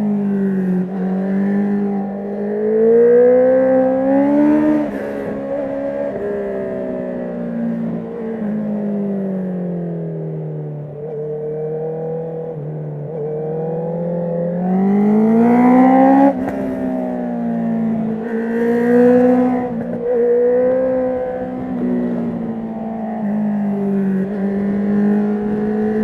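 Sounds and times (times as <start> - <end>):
motorcycle engine revving: 11.5 - 26.0.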